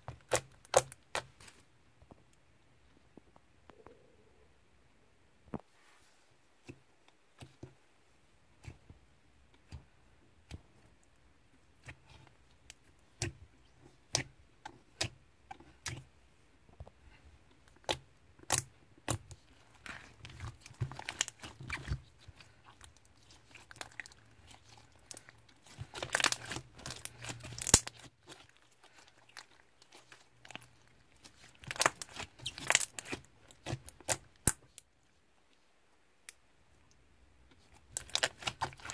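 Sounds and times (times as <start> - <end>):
slime clicking and popping: 25.8 - 28.1.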